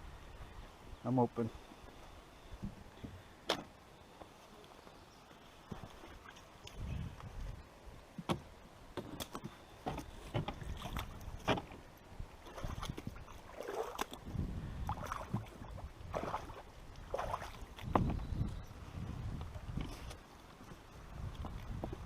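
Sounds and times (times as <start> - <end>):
paddle knocking against hull: 9.8 - 11.8
paddle strokes splashing water: 9.8 - 18.1.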